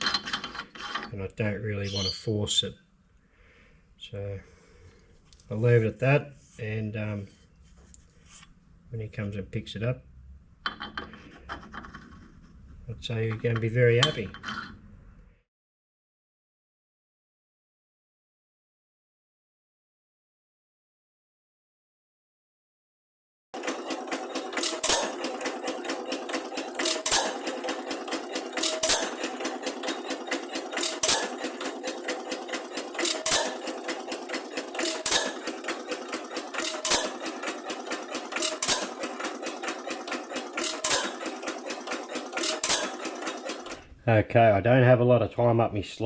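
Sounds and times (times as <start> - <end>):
light mechanical clatter: 23.6 - 43.9
stationary engine heavy knock: 23.9 - 43.8.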